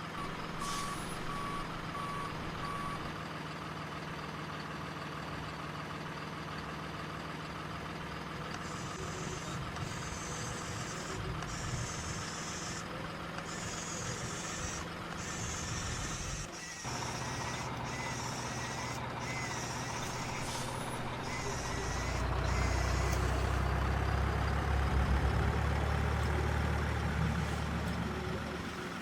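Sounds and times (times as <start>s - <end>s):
toy truck engine hum: 0.0s - 3.2s, 7.5s - 29.0s
electronic reversing beeps: 0.2s - 3.1s, 8.6s - 23.7s.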